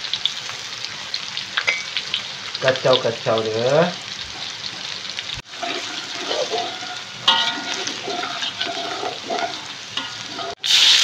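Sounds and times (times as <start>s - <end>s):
garlic sizzling in hot oil: 0.0s - 11.0s
water hissing in a hot wok: 0.0s - 11.0s
metal spatula scraping a wok: 5.5s - 10.8s.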